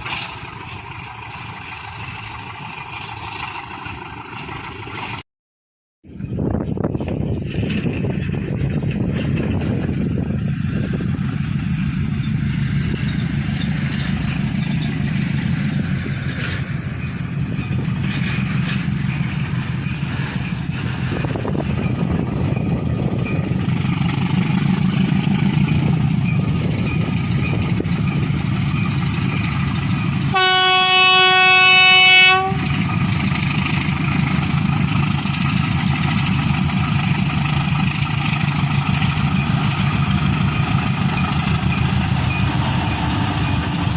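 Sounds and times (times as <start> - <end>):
diesel locomotive engines running: 0.0 - 5.2, 6.1 - 43.9
rolling train noise: 0.0 - 5.2, 6.0 - 43.9
locomotive horn blast: 30.2 - 32.9.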